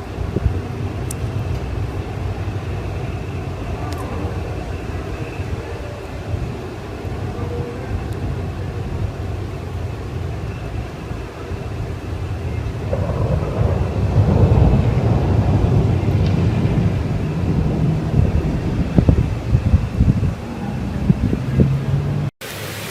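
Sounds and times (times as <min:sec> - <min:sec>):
thunder rumbling: 0:00.0 - 0:22.3.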